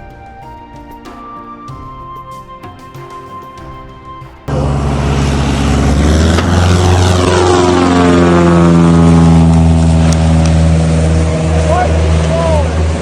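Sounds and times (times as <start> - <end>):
propeller airplane flying past: 4.5 - 13.0.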